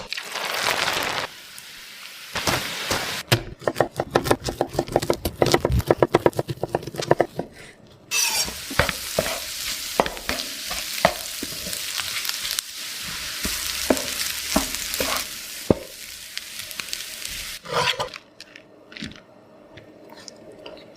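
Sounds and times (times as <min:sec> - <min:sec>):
rice sizzling in a pan: 0:00.0 - 0:03.2, 0:08.1 - 0:17.9.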